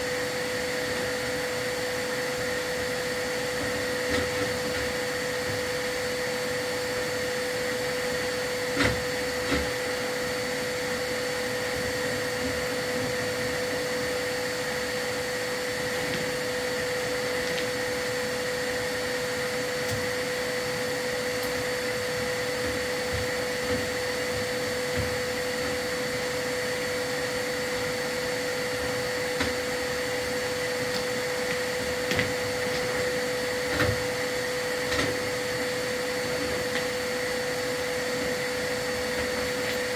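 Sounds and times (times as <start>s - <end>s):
vacuum whining hum: 0.0s - 39.9s.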